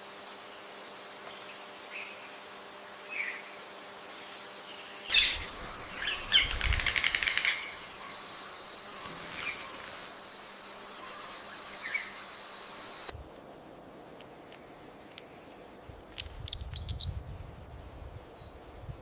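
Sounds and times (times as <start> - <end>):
birds calling: 5.1 - 10.0.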